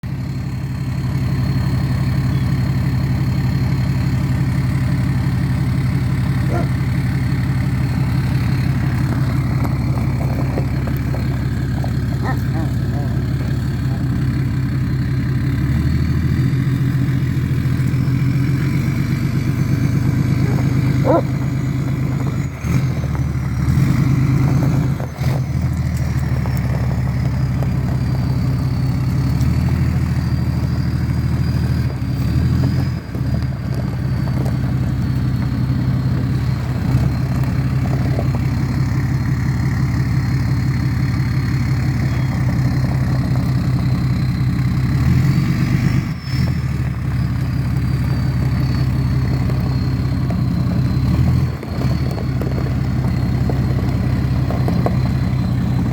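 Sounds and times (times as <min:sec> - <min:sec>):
diesel engine running: 0:00.0 - 0:55.9
turbocharger whistle: 0:02.2 - 0:02.7, 0:43.6 - 0:52.4.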